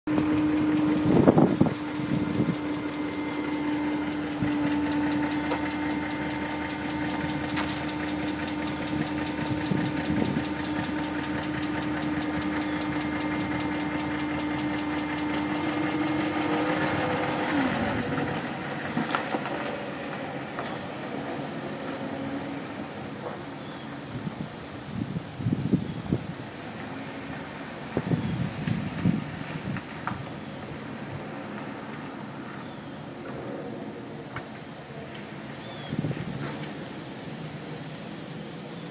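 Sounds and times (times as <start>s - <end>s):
car engine running: 0.0s - 25.0s
fast regular ticking: 0.1s - 22.0s.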